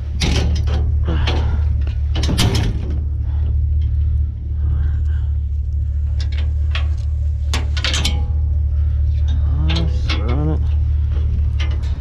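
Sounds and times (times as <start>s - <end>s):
sharp clicks and knocks: 0.0s - 4.0s, 5.6s - 12.0s
truck engine idling: 0.0s - 12.0s.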